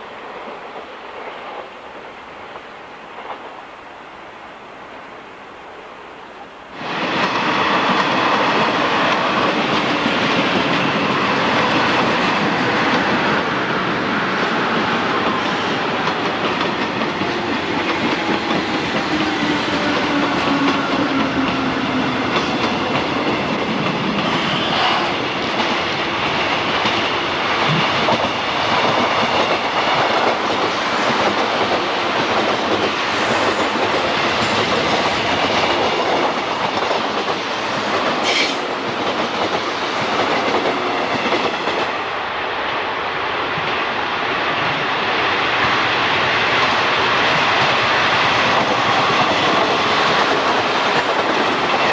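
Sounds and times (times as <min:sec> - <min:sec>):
train wheels clicking over rails: 0:06.8 - 0:51.9
train wheels squealing: 0:33.1 - 0:35.5, 0:38.2 - 0:38.7.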